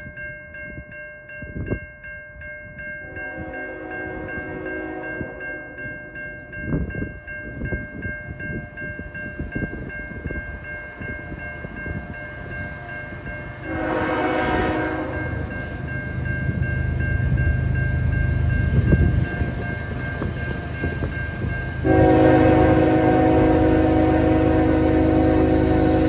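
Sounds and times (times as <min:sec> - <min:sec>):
crossing bell dinging: 0:00.0 - 0:26.0
locomotive horn: 0:03.2 - 0:05.4, 0:13.5 - 0:15.5, 0:21.8 - 0:26.0.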